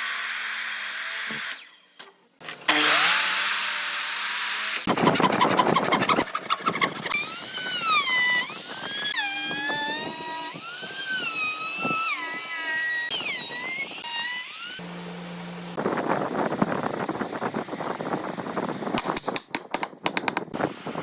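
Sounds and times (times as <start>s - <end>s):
power tool motor whining: 2.5s - 4.2s, 6.7s - 15.8s.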